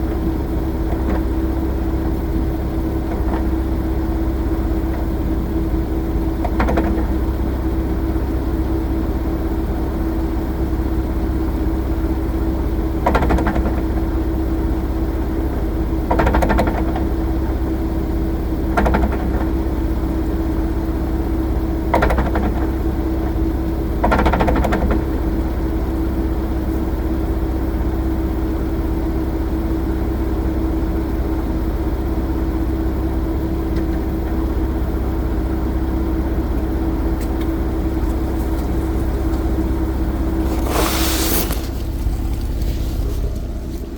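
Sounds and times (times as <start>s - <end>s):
car engine droning: 0.0s - 43.9s.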